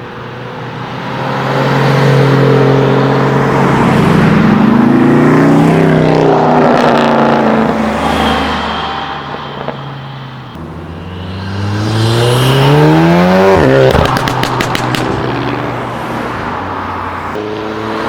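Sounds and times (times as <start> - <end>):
car engine revving: 1.0 - 18.0
exhaust pops: 13.4 - 15.5.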